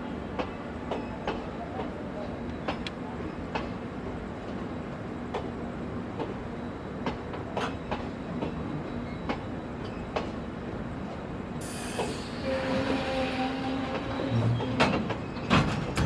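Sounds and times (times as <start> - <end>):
train rumble: 0.0 - 16.0
loud hiss: 11.6 - 13.6
train wheels clicking over rail joints: 13.9 - 16.0.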